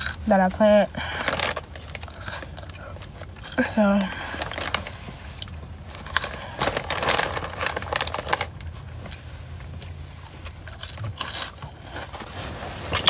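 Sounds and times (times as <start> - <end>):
person crunching snack: 0.0 - 0.3, 1.0 - 8.7, 10.2 - 12.0.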